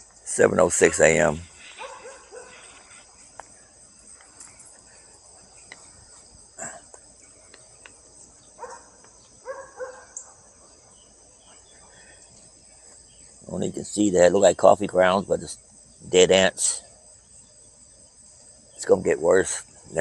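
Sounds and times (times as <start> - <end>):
crickets chirping: 0.0 - 20.0
distant dogs barking: 0.6 - 6.8, 8.4 - 12.2.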